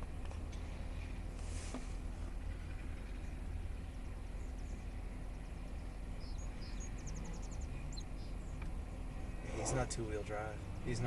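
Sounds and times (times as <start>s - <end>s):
distant truck engine rumbling: 0.0s - 11.0s
small birds chirping: 2.3s - 11.0s.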